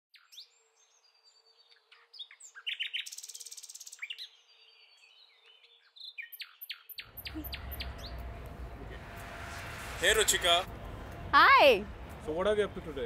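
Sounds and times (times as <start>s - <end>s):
small songbirds chirping: 0.1s - 8.4s.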